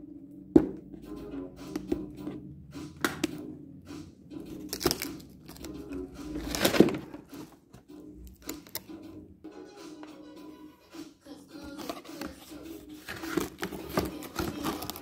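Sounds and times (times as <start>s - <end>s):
faint background music: 0.0s - 15.0s
taps and clicks of handling: 3.0s - 3.4s, 7.7s - 8.9s
packaging rustling and crinkling: 6.4s - 7.6s, 13.0s - 15.0s.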